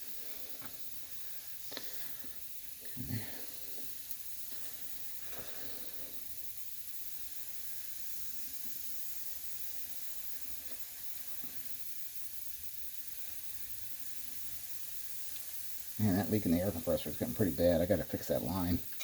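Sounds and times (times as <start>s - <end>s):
compressed air hissing: 0.0s - 6.8s.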